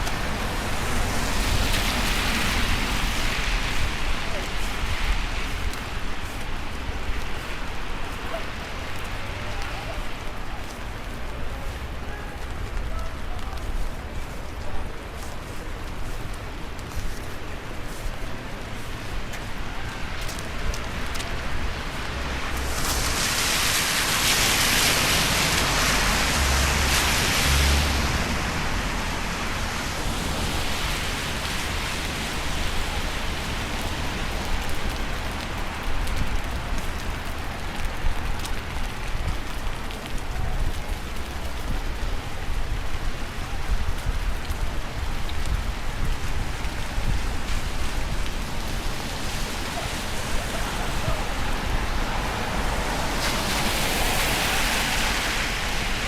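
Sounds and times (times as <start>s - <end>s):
steady rain hiss: 0.0s - 56.0s
raindrop ticks: 30.0s - 56.0s.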